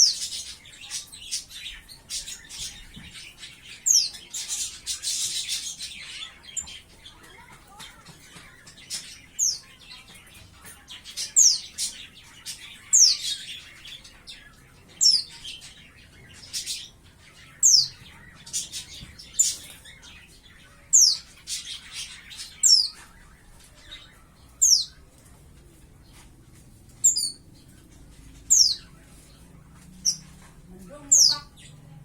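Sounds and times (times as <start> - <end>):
bird twittering: 11.2 - 25.0, 27.0 - 29.0.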